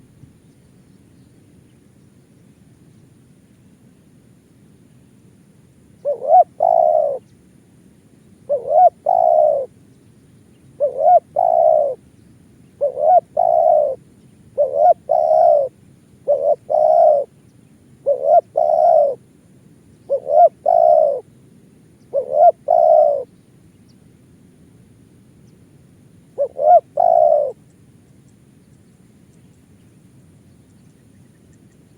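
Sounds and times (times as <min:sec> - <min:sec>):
dove cooing: 0:06.0 - 0:07.2, 0:08.5 - 0:09.8, 0:10.8 - 0:12.0, 0:12.8 - 0:14.0, 0:14.6 - 0:17.4, 0:18.0 - 0:19.3, 0:20.0 - 0:21.3, 0:22.0 - 0:23.3, 0:26.4 - 0:27.7.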